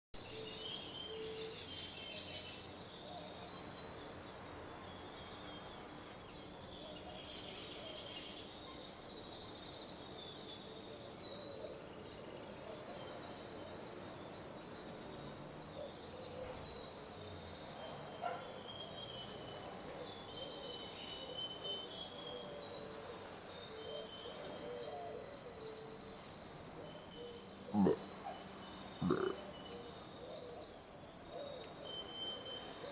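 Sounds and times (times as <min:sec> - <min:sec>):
low outdoor hiss: 0:00.2 - 0:32.9
birds chirping: 0:19.5 - 0:32.9.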